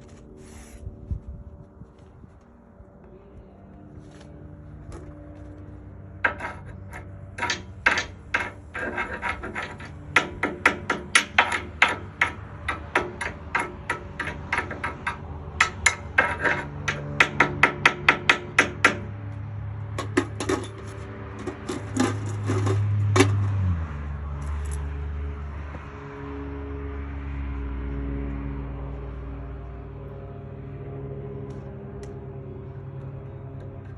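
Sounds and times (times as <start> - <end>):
steady low hum: 0.0 - 25.6
hammer striking steel: 6.2 - 19.2.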